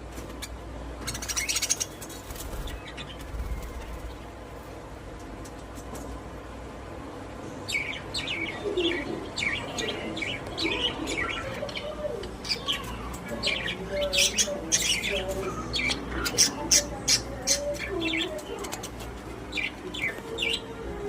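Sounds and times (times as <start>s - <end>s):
budgerigars chirping: 1.0s - 4.0s.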